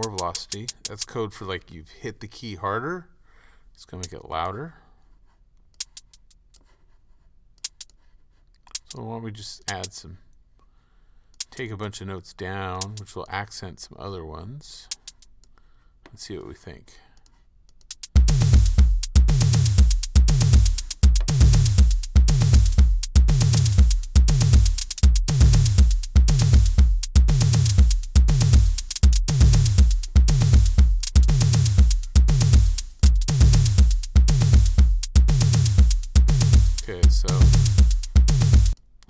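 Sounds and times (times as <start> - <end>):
drum machine bass drum: 0.0 - 1.1, 5.8 - 6.4, 8.7 - 9.0, 9.7 - 10.0, 12.8 - 13.1, 17.9 - 38.8
hi-hat ticks: 0.0 - 1.3, 3.9 - 4.6, 5.6 - 10.1, 11.3 - 12.0, 12.7 - 13.5, 14.7 - 15.6, 17.2 - 38.8.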